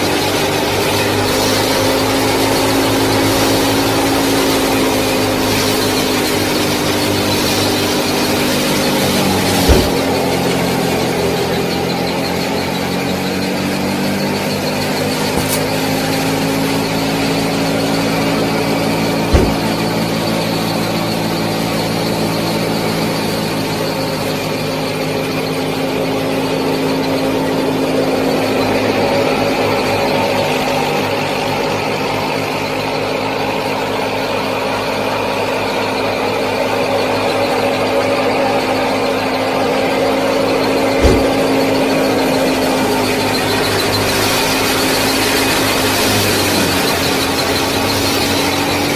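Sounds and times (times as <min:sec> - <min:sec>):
tractor and thresher running: 0:00.0 - 0:48.9
sharp thump: 0:08.6 - 0:10.5, 0:15.4 - 0:16.1, 0:19.1 - 0:20.1, 0:41.0 - 0:41.9.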